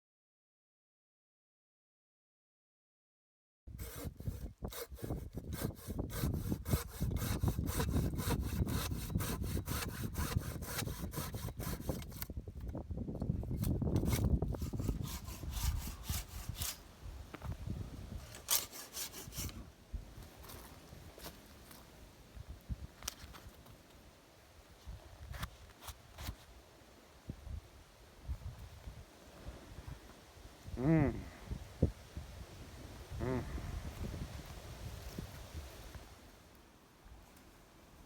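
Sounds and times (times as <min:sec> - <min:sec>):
hand saw cutting wood: 0:03.8 - 0:12.4, 0:13.5 - 0:16.9, 0:18.2 - 0:19.7.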